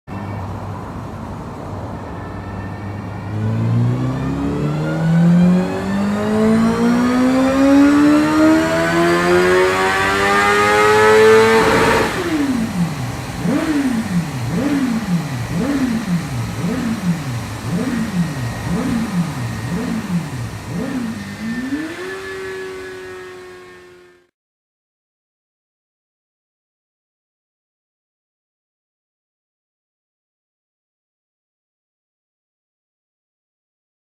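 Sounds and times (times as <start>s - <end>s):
motorcycle engine revving: 3.2s - 24.3s.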